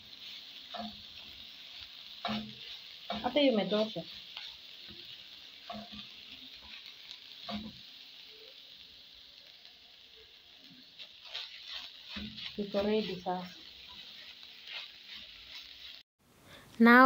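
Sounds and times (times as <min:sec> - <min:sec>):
filling sizzling in a pan: 0:00.0 - 0:16.6
spoon scraping a pan: 0:00.1 - 0:07.9, 0:10.7 - 0:16.0.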